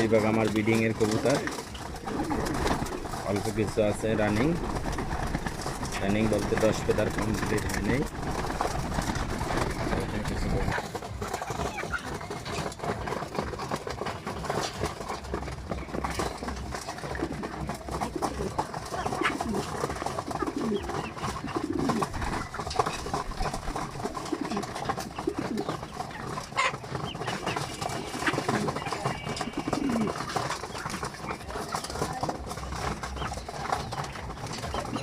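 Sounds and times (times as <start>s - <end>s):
pigeons cooing: 0.0s - 35.0s.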